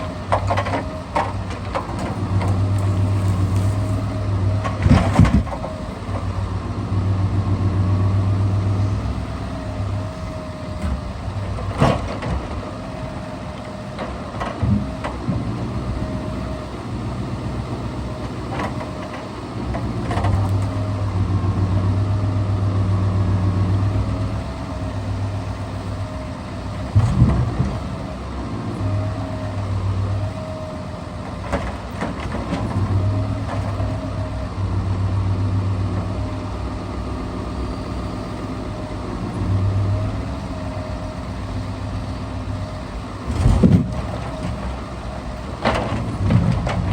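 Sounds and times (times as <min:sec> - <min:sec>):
truck engine running: 0:00.0 - 0:46.9.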